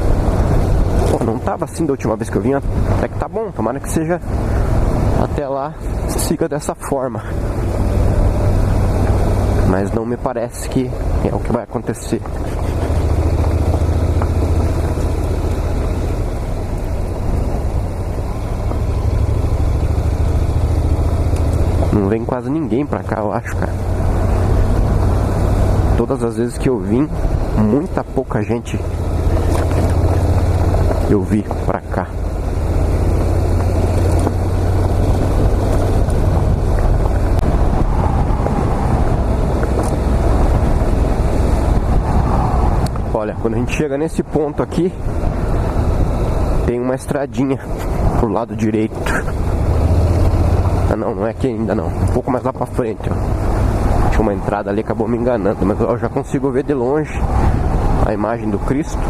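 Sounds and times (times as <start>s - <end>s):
motorcycle engine rumbling: 0.0s - 59.0s
wind and road noise: 0.0s - 59.0s
wind noise on microphone: 32.2s - 46.8s, 56.7s - 59.0s.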